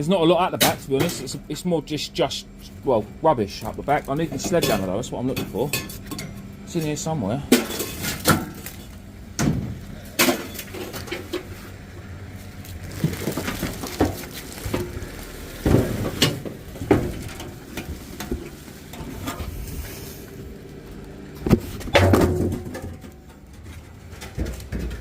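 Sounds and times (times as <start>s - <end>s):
metal objects clanking and scraping: 4.3s - 6.4s, 7.5s - 8.9s, 10.1s - 11.7s, 15.6s - 20.3s
rustling: 12.4s - 21.8s.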